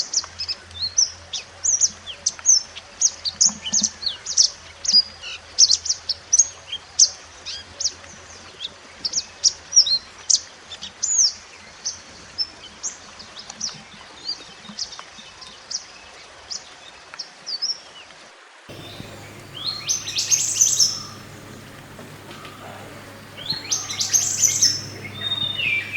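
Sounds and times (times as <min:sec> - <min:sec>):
low hum: 0:18.7 - 0:25.9
songbird chirping and whistling: 0:18.7 - 0:25.9.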